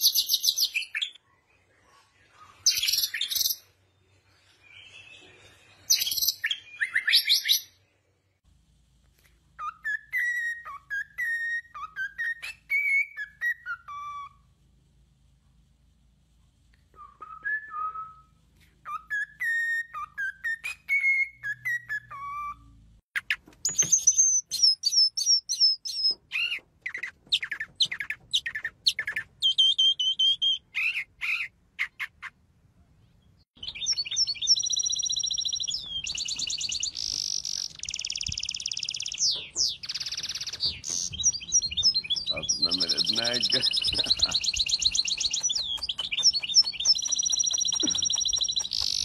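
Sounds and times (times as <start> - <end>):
cockatiel whistling a tune: 9.6 - 14.4, 16.9 - 22.8, 33.6 - 42.3, 44.4 - 49.0
mockingbird singing varied phrases: 18.8 - 32.4, 33.6 - 49.0
bird trilling and buzzing: 33.6 - 49.0.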